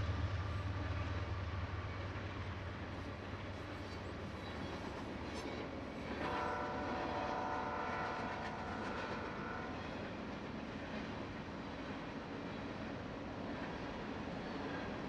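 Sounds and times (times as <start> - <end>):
freight train rolling past: 0.0 - 15.0
locomotive air horn: 6.2 - 9.8.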